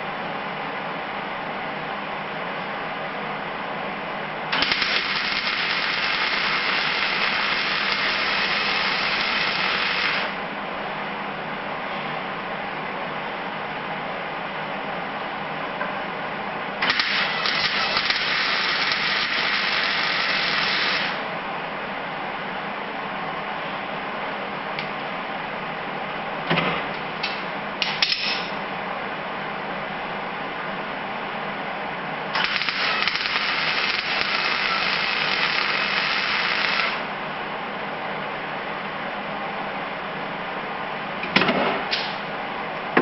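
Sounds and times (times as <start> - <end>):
welding arc crackling: 4.5 - 10.4, 16.8 - 21.3, 32.3 - 37.1.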